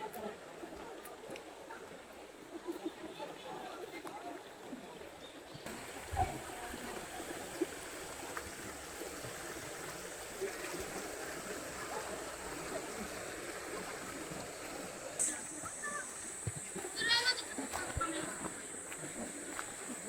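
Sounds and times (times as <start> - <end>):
rushing running water: 5.6 - 20.0.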